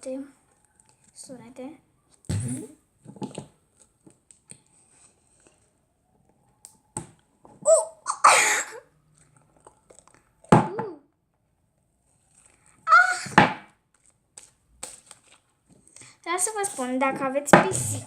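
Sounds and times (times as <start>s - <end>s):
slime squelching and popping: 9.1s - 11.0s, 13.8s - 16.0s.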